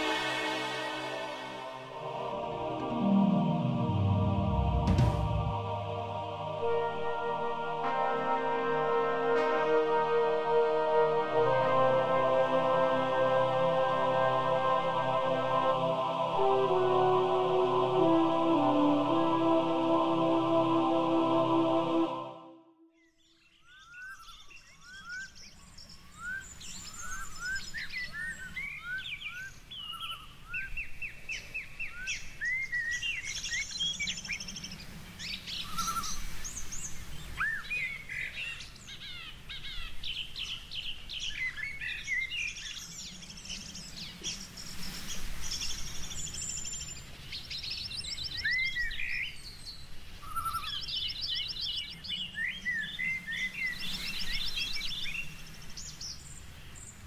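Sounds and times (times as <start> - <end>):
birds singing and calling: 23.1 - 57.0.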